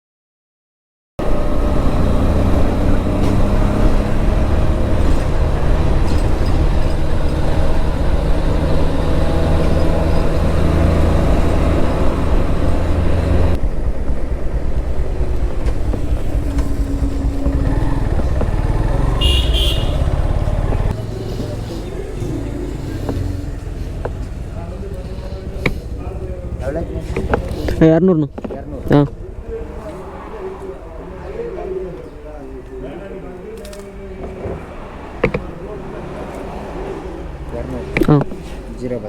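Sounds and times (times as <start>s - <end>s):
motorcycle engine running: 1.2s - 30.2s
road noise: 1.2s - 39.0s.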